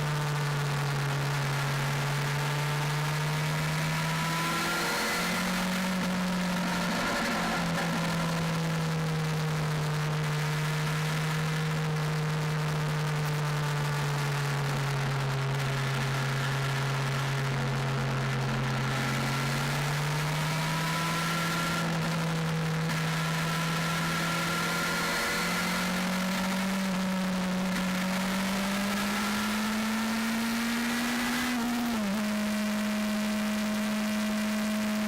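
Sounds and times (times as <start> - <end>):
motorcycle engine cruising: 0.0 - 11.7.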